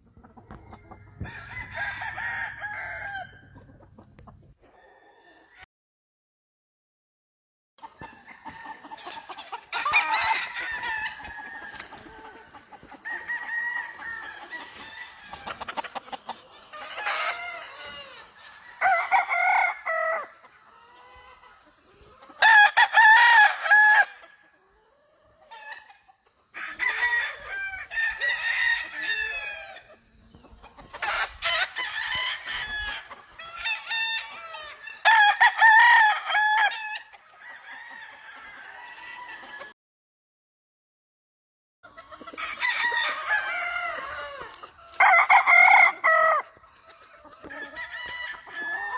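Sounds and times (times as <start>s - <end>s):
roosters crowing: 0.0s - 5.6s, 7.9s - 39.7s, 42.0s - 48.9s
chicken calls: 0.0s - 5.7s, 7.8s - 39.7s, 41.8s - 48.9s.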